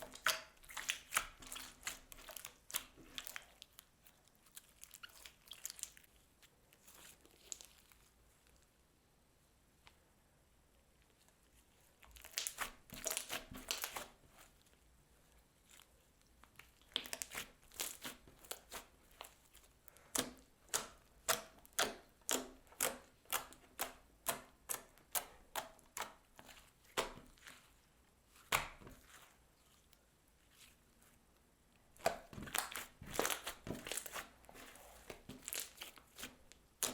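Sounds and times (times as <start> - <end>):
slime with beads crackling: 0.0 - 8.2, 12.0 - 14.7, 15.6 - 30.8, 31.9 - 36.9.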